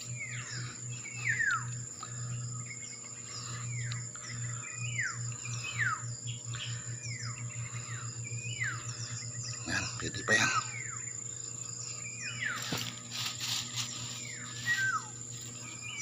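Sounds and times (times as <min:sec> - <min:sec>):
high insect drone: 0:00.0 - 0:16.0
bird whistling downward note: 0:14.5 - 0:15.2.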